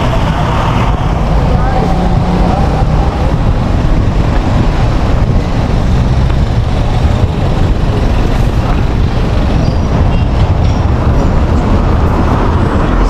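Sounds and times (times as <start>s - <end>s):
heavy road traffic rumble: 0.0s - 13.0s.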